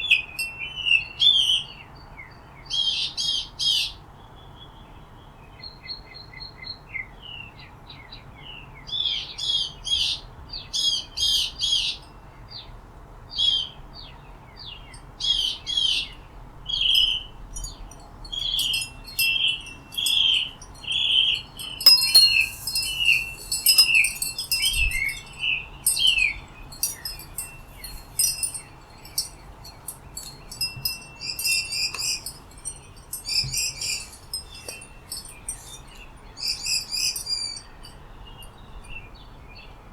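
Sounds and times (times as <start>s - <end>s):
songbirds chirping and singing: 16.8s - 39.3s.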